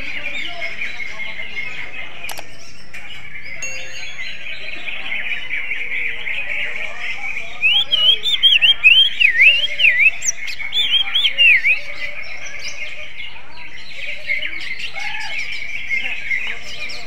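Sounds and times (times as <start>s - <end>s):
small birds chirping: 0.0s - 17.0s
bird singing whistled notes: 7.3s - 13.0s.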